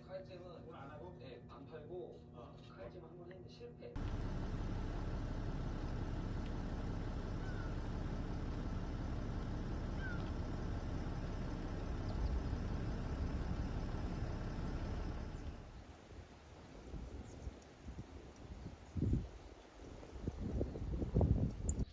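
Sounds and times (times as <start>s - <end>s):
low engine-like rumble: 4.0s - 16.0s.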